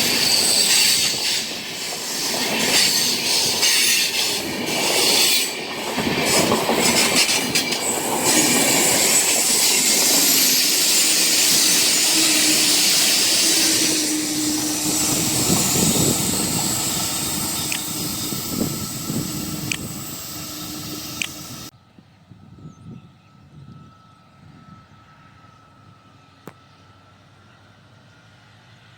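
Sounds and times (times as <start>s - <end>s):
passenger train rolling past: 0.0s - 28.9s.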